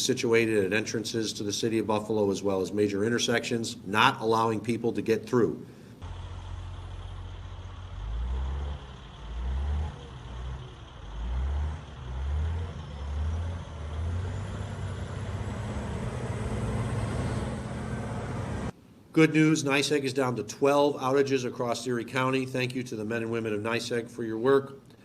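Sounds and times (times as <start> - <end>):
vehicle engine rumble: 6.0 - 18.8.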